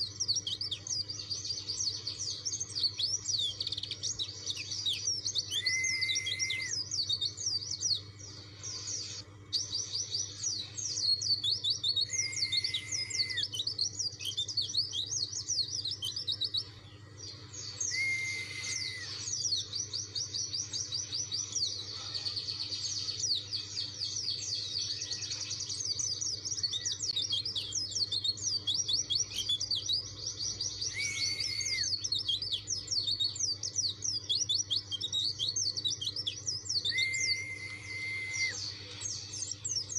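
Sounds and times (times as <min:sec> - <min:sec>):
bird twittering song: 0:00.0 - 0:39.9
short level whistle: 0:17.9 - 0:19.2, 0:37.0 - 0:38.6.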